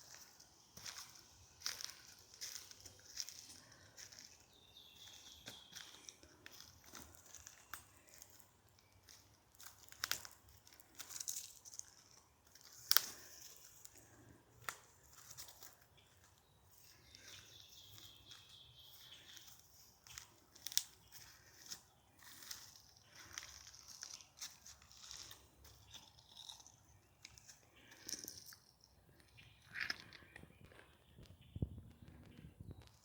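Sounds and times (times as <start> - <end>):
footsteps crunching dry leaves: 0.0 - 26.6
twig snapping: 12.5 - 13.3.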